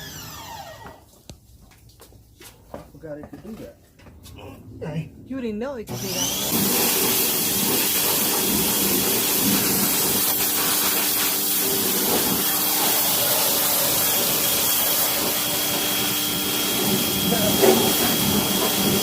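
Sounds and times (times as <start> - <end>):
pressure washer motor humming: 0.0 - 1.0, 5.9 - 19.0
water spraying onto engine: 6.2 - 19.0.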